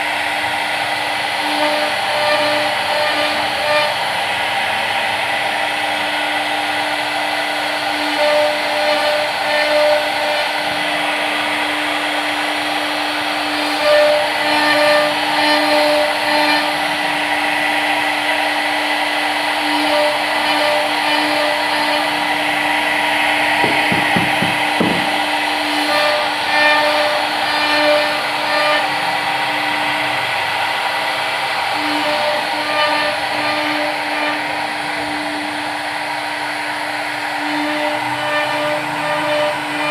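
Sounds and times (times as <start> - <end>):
machine cutting noise: 0.0 - 39.9
machine hum: 0.0 - 39.9
knocks: 23.6 - 25.3.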